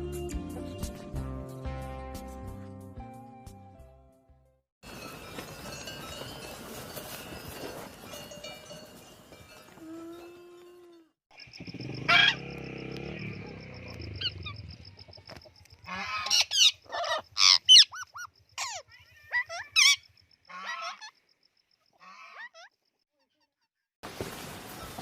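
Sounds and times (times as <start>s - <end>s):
geese honking: 15.8s - 18.0s, 19.8s - 21.1s.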